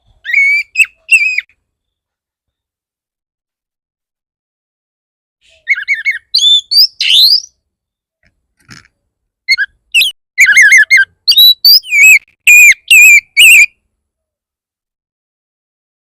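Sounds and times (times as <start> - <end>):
bird singing whistled phrases: 0.2 - 1.5, 5.4 - 7.6, 9.5 - 13.7.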